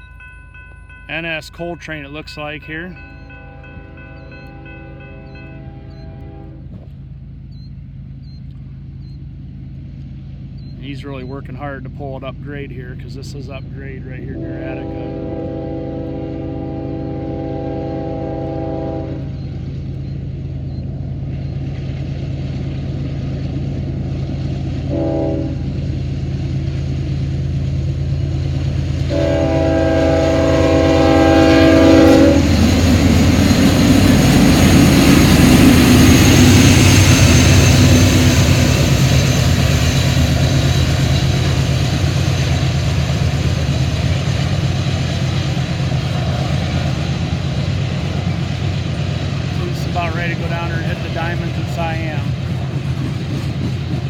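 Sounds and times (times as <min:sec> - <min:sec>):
diesel locomotives working hard: 0:00.0 - 0:54.0
train wheels rumbling on rails: 0:00.0 - 0:54.0
train air horn blasts: 0:03.5 - 0:06.8, 0:14.3 - 0:19.3, 0:24.9 - 0:25.7, 0:29.1 - 0:32.8.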